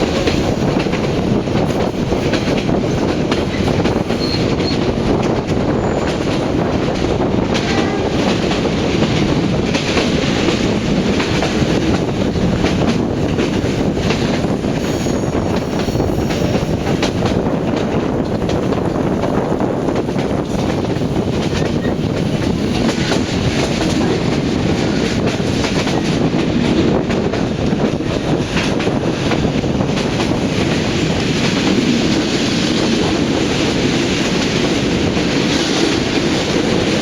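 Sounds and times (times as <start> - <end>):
train wheels rumbling on rail: 0.0 - 37.0
high wheel squeals: 4.2 - 4.8, 14.8 - 16.6.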